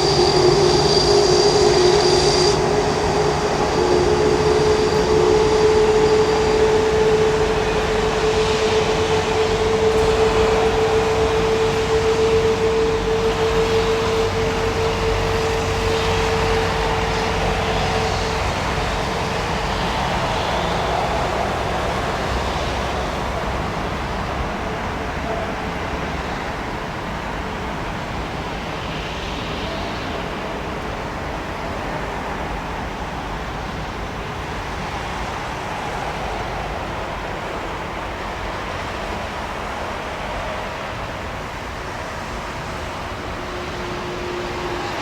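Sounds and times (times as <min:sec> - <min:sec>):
steady hum tone: 0:00.0 - 0:18.6
jet engine rush: 0:00.0 - 0:45.0.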